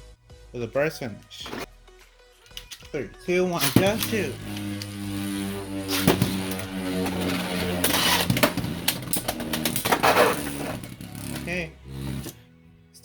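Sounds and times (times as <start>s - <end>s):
spinning tops whirring: 3.6s - 12.4s.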